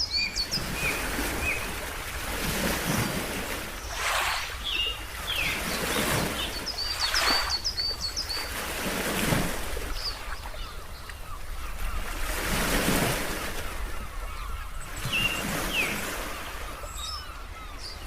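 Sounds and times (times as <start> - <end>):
ocean waves surging: 0.0 - 10.2
small birds chirping: 2.8 - 8.6.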